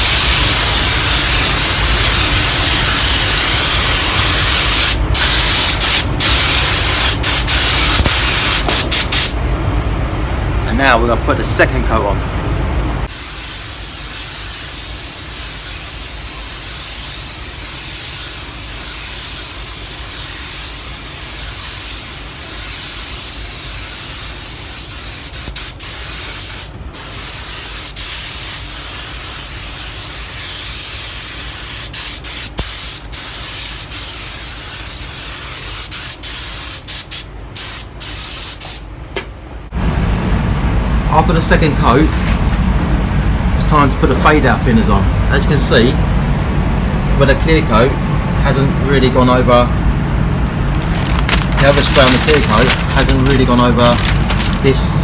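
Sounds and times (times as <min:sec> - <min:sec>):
paint spray gun hissing: 0:00.0 - 0:09.4, 0:13.1 - 0:38.8, 0:50.8 - 0:54.7.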